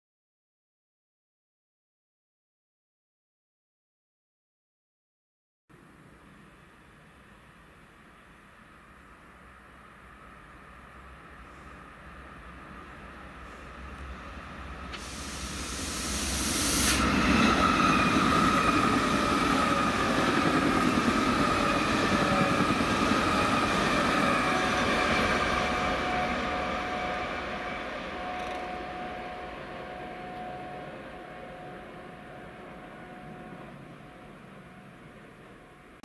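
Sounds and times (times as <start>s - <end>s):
train wheels rushing on rail: 7.9s - 36.0s.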